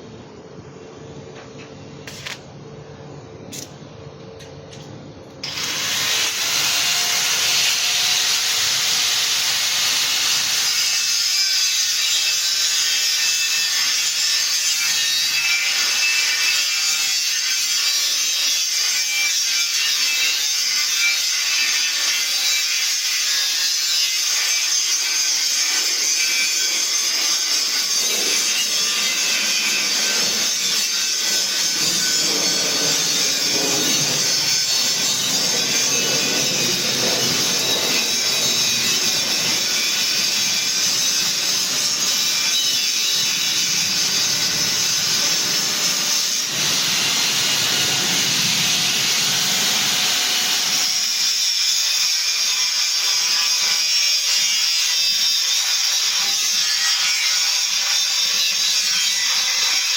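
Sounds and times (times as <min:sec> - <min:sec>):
power saw cutting wood: 0:05.4 - 0:17.2, 0:21.3 - 0:51.5.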